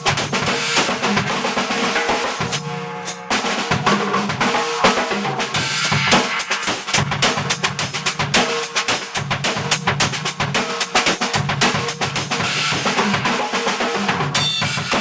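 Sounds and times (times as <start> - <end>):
drum kit groove: 0.0 - 15.0.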